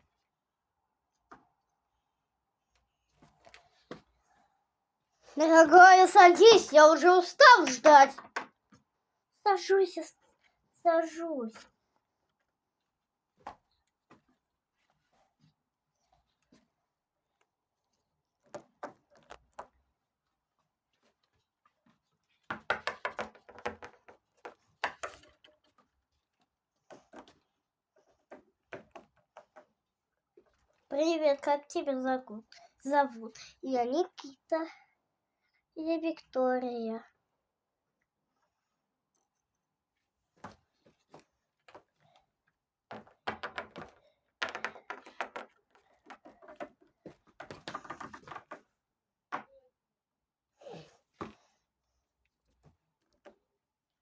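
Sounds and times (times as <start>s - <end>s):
plastic toys clicking and tapping: 22.5s - 25.6s, 42.9s - 48.7s.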